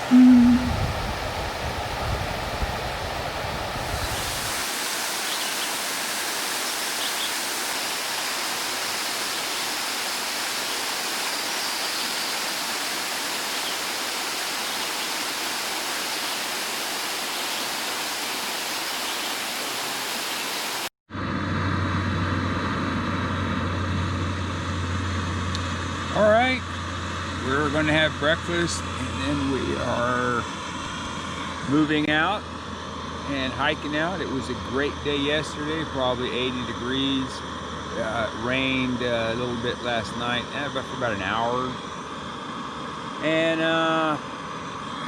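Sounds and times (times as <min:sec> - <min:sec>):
steady noise with low hum: 0:00.0 - 0:45.0
waterfall rushing: 0:03.9 - 0:20.9.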